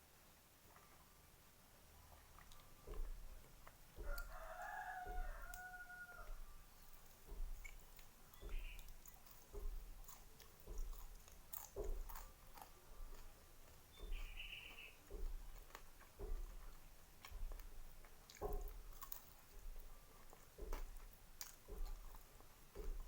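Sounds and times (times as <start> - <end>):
close chewing: 0.6 - 23.0
rooster crowing: 4.0 - 6.6.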